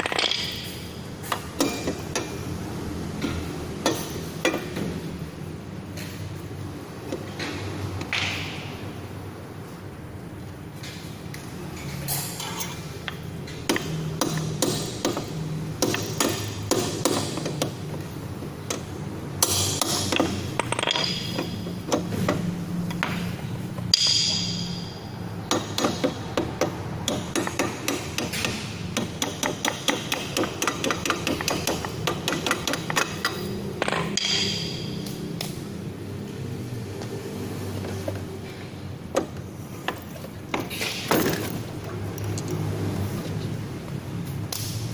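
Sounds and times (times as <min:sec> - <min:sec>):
hammer-like knocks and taps: 0:25.5 - 0:34.7.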